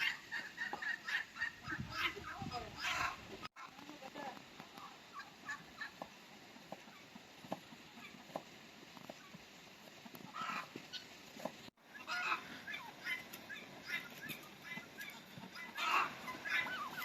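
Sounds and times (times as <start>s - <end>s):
poultry calling: 0.0s - 3.8s, 4.7s - 7.0s, 7.6s - 8.4s, 10.1s - 11.1s, 11.8s - 17.0s.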